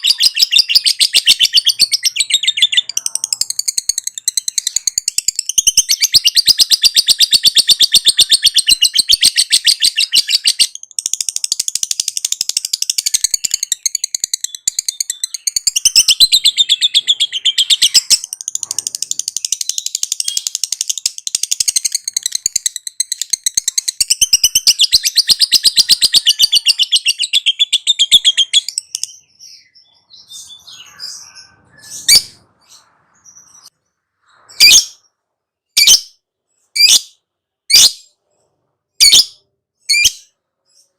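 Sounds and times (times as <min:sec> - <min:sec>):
lovebird chattering trill: 0:00.0 - 0:33.7
sharp bird chirps: 0:00.0 - 0:40.9.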